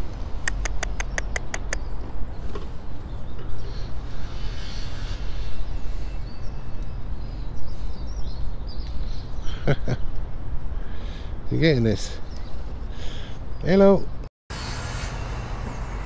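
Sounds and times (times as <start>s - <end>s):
sharp clicks: 0.5s - 1.8s.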